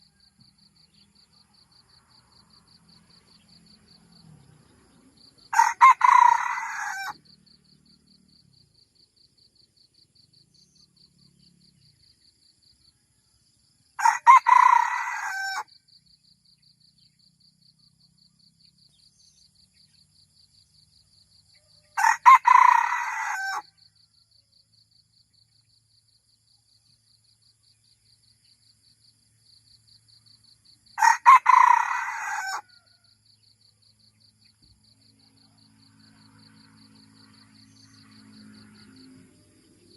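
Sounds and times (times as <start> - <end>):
rooster crowing: 5.5 - 7.2, 14.0 - 15.7, 21.6 - 23.7, 31.0 - 33.1.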